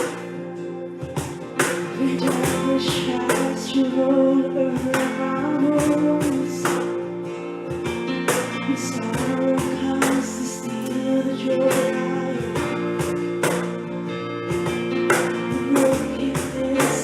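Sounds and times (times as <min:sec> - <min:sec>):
strummed acoustic guitar: 0:00.0 - 0:17.0
person singing: 0:01.6 - 0:13.8, 0:14.5 - 0:17.0.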